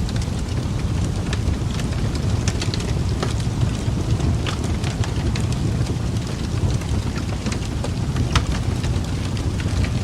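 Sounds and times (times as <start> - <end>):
low rumble of flames: 0.0 - 10.0
wood fire crackling: 0.0 - 10.0.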